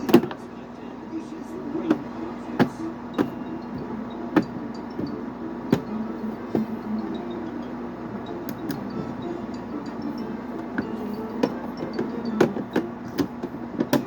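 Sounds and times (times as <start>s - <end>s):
sharp clicks and knocks: 10.7s - 14.0s.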